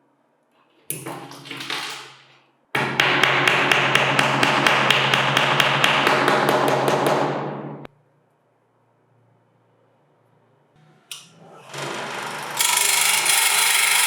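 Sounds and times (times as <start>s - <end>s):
bench grinder running: 11.4s - 14.0s.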